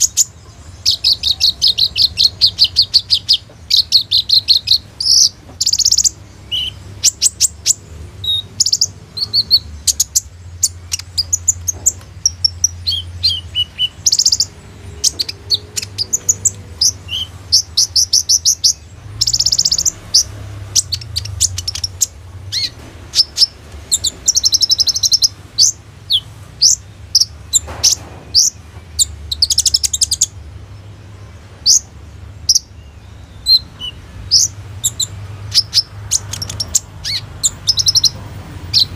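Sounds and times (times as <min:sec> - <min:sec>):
sunbird chirping and trilling: 0:00.0 - 0:38.9.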